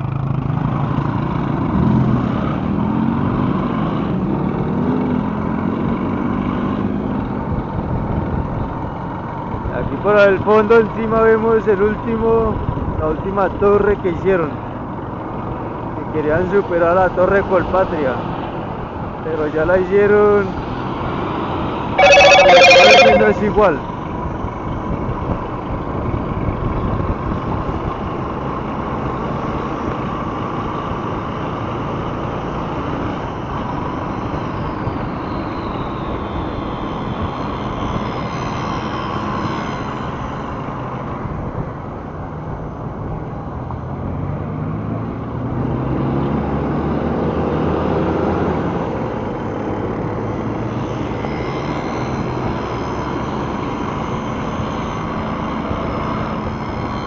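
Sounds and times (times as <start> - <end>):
motorcycle engine and road noise: 0.0 - 13.0, 24.6 - 57.0.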